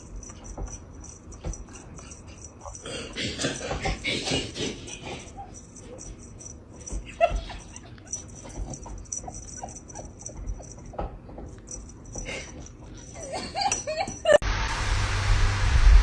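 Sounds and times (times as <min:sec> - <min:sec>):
low hum: 0:13.7 - 0:16.0
steady rushing noise: 0:14.5 - 0:16.0.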